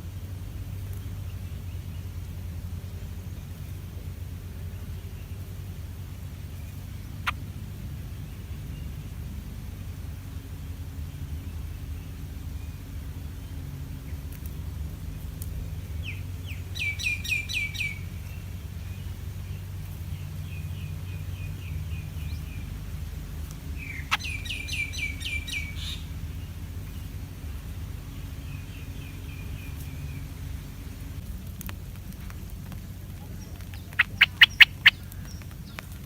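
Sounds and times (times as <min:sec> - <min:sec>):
steady low rumble: 0:00.0 - 0:36.0
bird chirping: 0:15.9 - 0:22.9, 0:23.7 - 0:31.1, 0:33.2 - 0:36.0.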